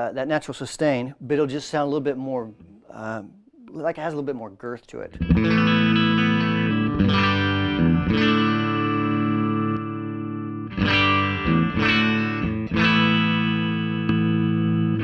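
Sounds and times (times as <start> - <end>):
electric guitar chords ringing: 5.2 - 15.0.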